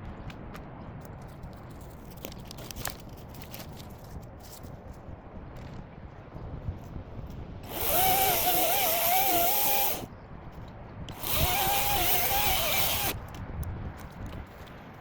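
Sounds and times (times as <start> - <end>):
electric chainsaw whining: 7.6 - 10.1, 11.1 - 13.2.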